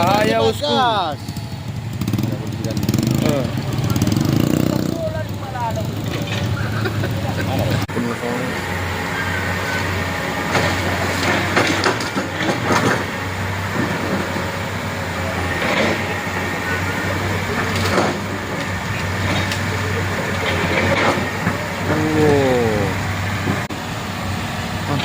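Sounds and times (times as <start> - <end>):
heavy truck engine running: 0.0 - 25.0
clanks and rattles: 2.0 - 7.9, 10.5 - 21.9.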